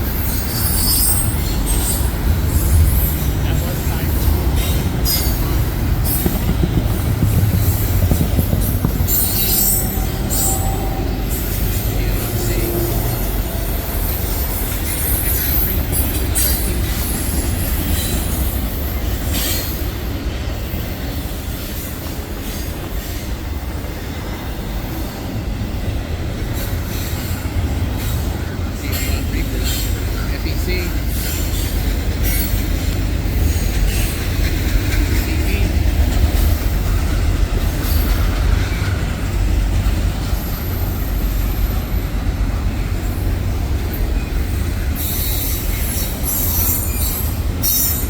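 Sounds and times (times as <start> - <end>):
train cars rumbling past: 0.0 - 48.0
wheel squeals: 0.1 - 3.3, 4.6 - 12.1, 45.0 - 48.0.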